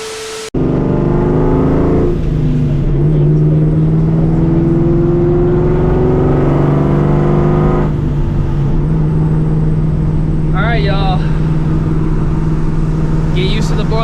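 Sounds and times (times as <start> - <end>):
supercharged car engine pulling: 0.0 - 14.0.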